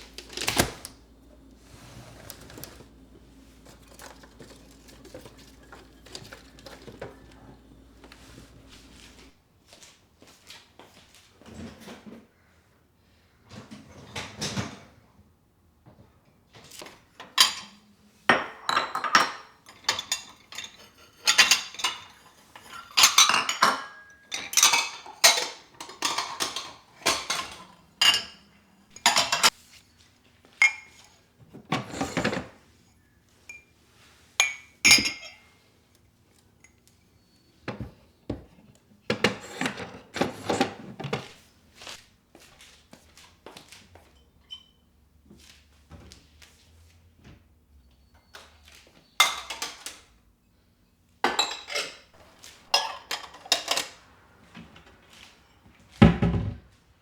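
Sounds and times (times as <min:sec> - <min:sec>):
dishes and cutlery clattering: 0:00.0 - 0:09.3, 0:17.2 - 0:29.6, 0:30.6 - 0:32.6, 0:34.4 - 0:35.5, 0:39.1 - 0:41.4, 0:49.2 - 0:50.0, 0:51.3 - 0:56.5.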